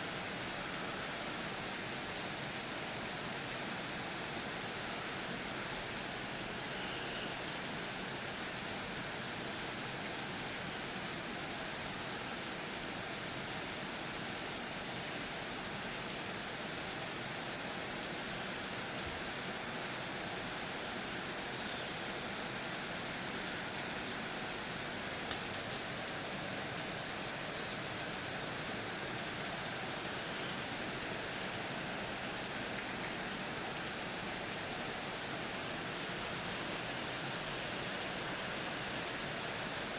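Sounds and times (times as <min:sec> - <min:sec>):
rain hissing: 0:20.8 - 0:39.9.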